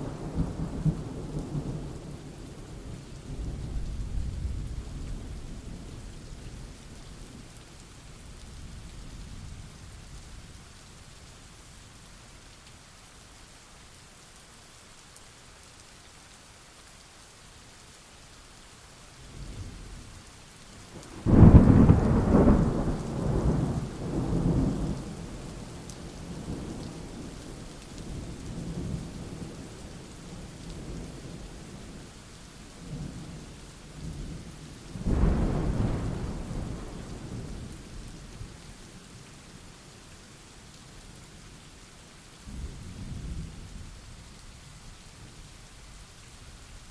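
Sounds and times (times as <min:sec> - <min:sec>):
steady rain: 0:00.0 - 0:46.9
rolling thunder: 0:21.1 - 0:25.6, 0:35.0 - 0:37.8
loud thunderclap: 0:21.2 - 0:25.0, 0:35.0 - 0:37.3.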